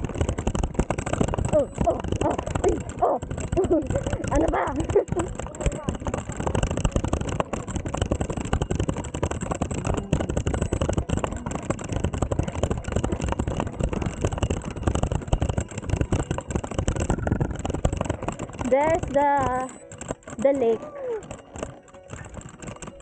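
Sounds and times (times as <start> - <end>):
bicycle rattling: 0.0 - 23.0.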